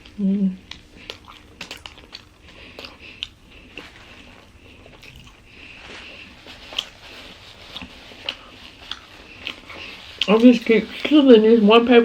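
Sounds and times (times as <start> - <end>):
wet mouth clicks: 0.0 - 3.8, 4.9 - 5.5
close-up chewing: 0.0 - 11.1.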